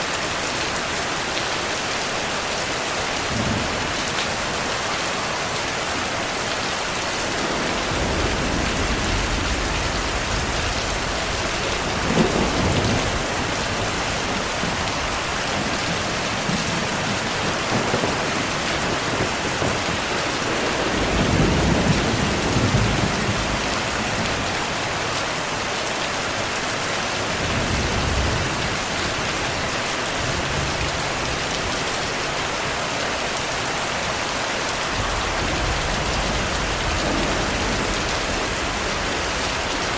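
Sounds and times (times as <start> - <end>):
heavy rain: 0.0 - 39.9
thunder rumbling: 6.8 - 24.9, 34.9 - 39.9.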